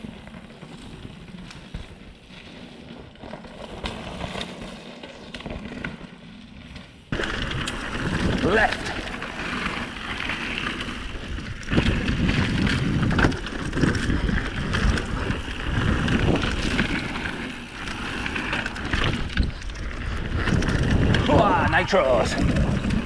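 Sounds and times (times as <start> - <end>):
bike tyres rolling on dirt: 0.0 - 23.0
bike chain and frame rattling: 6.7 - 23.0
wind buffeting microphone: 7.1 - 23.0.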